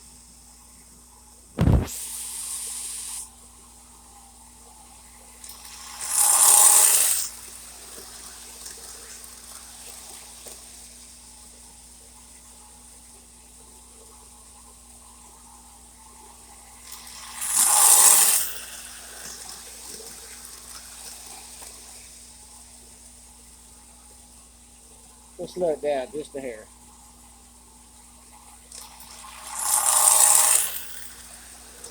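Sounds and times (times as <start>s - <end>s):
model train hissing and rushing: 1.6s - 3.3s, 5.4s - 11.0s, 16.8s - 22.1s, 28.8s - 31.9s.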